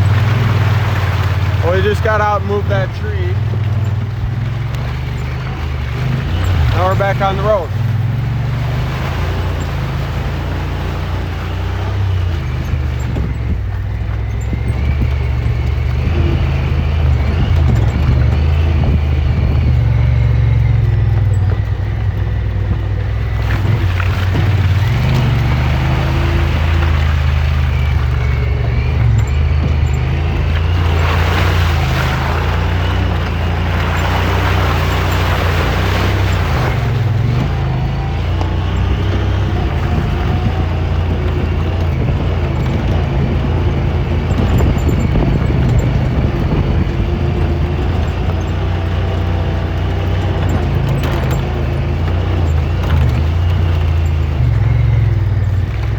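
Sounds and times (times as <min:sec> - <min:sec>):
rough rushing noise: 0:00.0 - 0:13.7, 0:23.2 - 0:48.2
utility vehicle engine running: 0:00.0 - 0:55.9.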